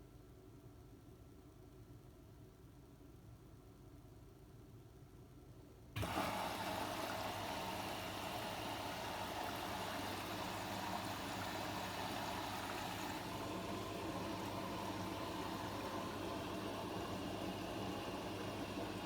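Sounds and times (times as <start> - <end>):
washing machine water rushing: 6.0 - 19.0.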